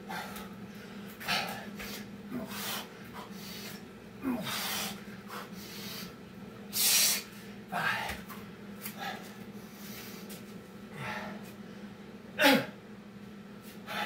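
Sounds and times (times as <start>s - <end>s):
man breathing hard: 0.0s - 8.2s, 8.9s - 11.8s
low steady hum: 0.0s - 14.0s.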